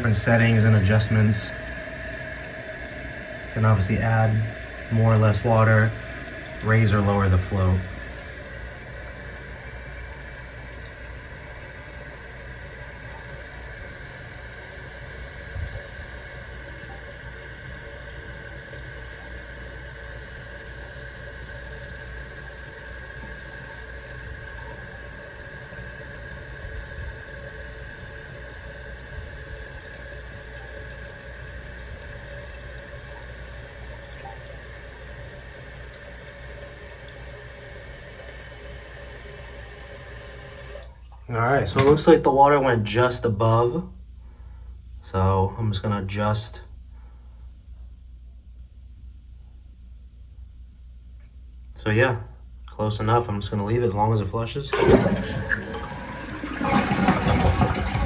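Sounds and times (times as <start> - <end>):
water hissing into toilet tank: 0.0 - 42.5, 54.6 - 58.0.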